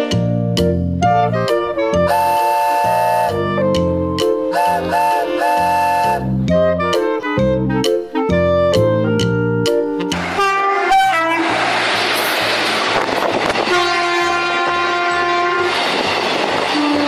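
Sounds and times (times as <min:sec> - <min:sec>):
bouncy children's music: 0:00.0 - 0:10.3
train rushing and hissing: 0:00.1 - 0:06.4, 0:09.9 - 0:17.0
train horn: 0:01.0 - 0:03.8, 0:04.5 - 0:07.0, 0:10.0 - 0:17.0.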